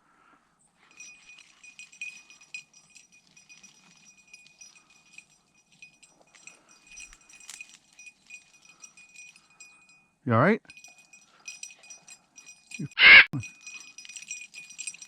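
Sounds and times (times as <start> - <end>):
dog collar bell jingling: 0.7 - 15.0.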